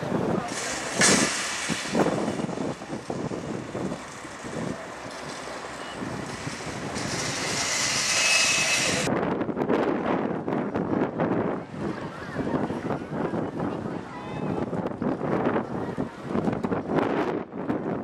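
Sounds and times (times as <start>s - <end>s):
wind on microphone: 0.0s - 18.0s
aircraft engine rushing: 0.4s - 9.1s.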